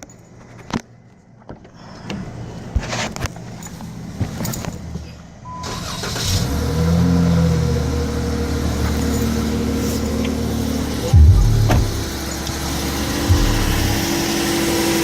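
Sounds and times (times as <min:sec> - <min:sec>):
car engine starting and idling: 0:05.5 - 0:15.0.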